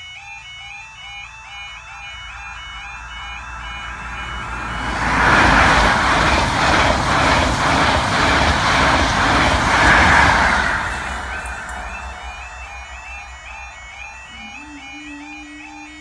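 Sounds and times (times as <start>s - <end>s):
diesel power car passing: 1.8s - 14.7s
train wheels rushing on rail: 2.0s - 14.7s.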